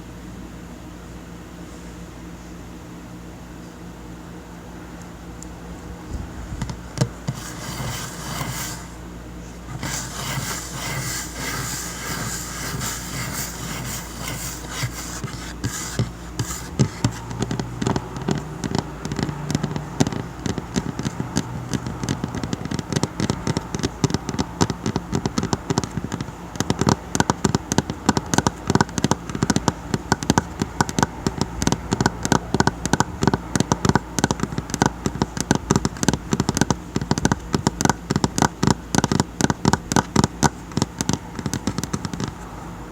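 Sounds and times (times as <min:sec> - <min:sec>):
low steady hum: 0:00.0 - 0:42.9
fingers tapping on a tabletop: 0:06.6 - 0:08.9, 0:09.7 - 0:42.4.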